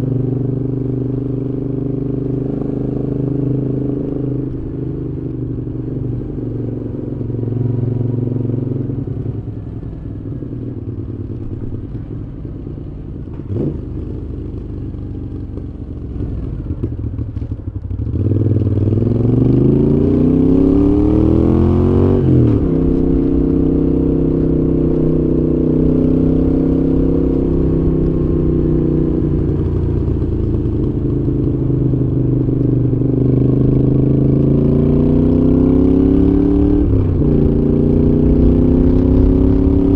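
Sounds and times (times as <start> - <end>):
motorcycle engine revving: 13.3 - 39.9.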